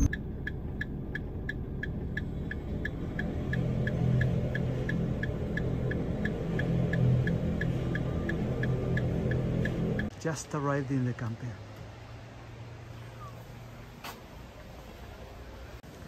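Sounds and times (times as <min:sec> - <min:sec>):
warning signal pips: 0:00.0 - 0:00.2, 0:00.8 - 0:10.1
electric train hum: 0:00.0 - 0:10.2.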